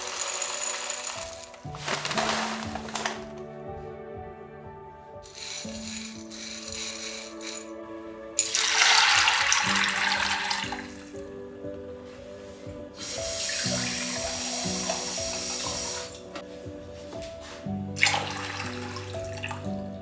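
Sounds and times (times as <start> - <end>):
background music: 0.0 - 20.0
tap water running into sink: 8.4 - 11.0, 13.0 - 16.4, 18.0 - 19.7.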